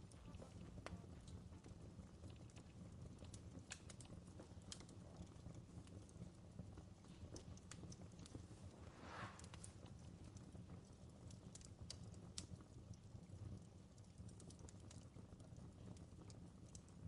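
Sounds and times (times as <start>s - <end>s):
low steady rumble: 0.0s - 11.6s
burning wood popping: 0.0s - 17.0s
campfire crackling: 0.0s - 17.0s.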